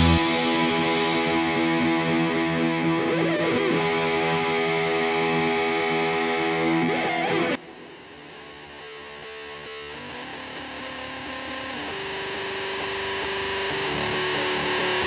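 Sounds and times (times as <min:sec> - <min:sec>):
background music: 0:00.0 - 0:04.6
distorted electric guitar chord: 0:00.0 - 0:15.0.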